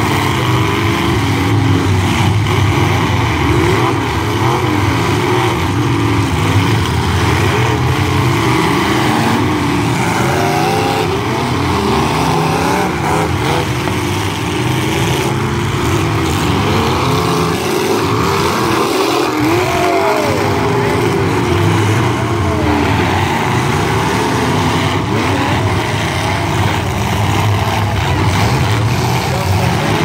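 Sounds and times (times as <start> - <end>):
truck engines revving: 0.0 - 30.0.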